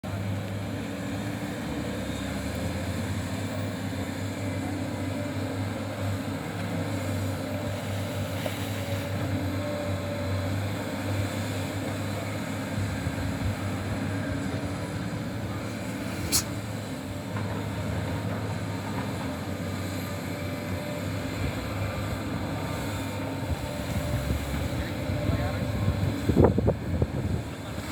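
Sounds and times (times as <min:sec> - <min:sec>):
excavator diesel engines droning: 0:00.0 - 0:27.9
sharp click: 0:16.2 - 0:16.6.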